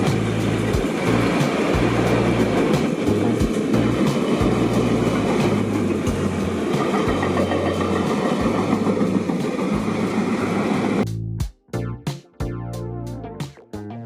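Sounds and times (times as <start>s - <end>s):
rail joint clacks: 0.0s - 11.0s
train wheels rumbling on rails: 0.0s - 11.0s.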